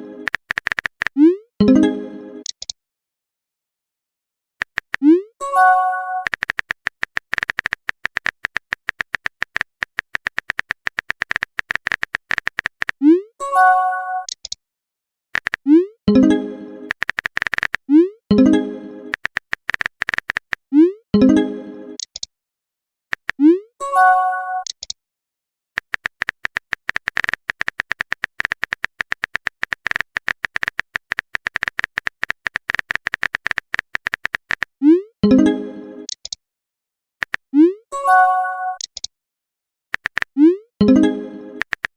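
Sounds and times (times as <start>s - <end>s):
keyboard typing clicks: 0.2s - 1.4s, 2.4s - 2.8s, 4.6s - 5.2s, 6.2s - 13.0s, 14.2s - 14.6s, 15.4s - 16.3s, 16.9s - 17.8s, 18.5s - 20.6s, 22.0s - 22.3s, 23.1s - 23.5s, 24.6s - 25.0s, 25.8s - 34.8s, 36.1s - 36.4s, 37.2s - 37.5s, 38.7s - 39.1s, 40.0s - 41.9s.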